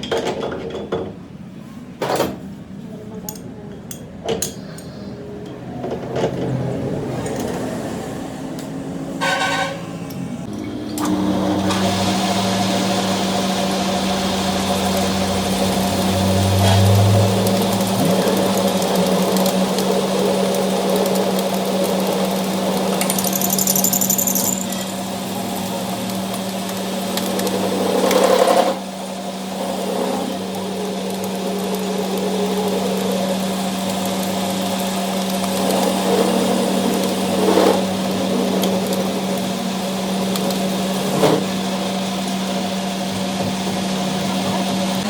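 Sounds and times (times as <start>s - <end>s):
machine humming: 6.8s - 45.0s
mechanical rattling: 22.8s - 24.9s.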